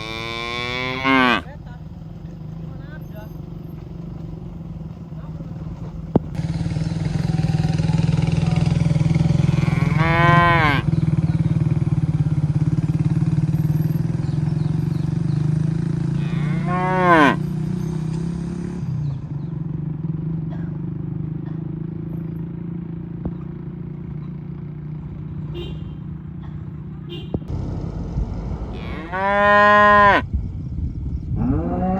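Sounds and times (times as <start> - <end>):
cattle mooing: 0.0 - 1.5, 9.4 - 10.9, 16.2 - 17.4, 28.7 - 30.2, 31.4 - 31.9.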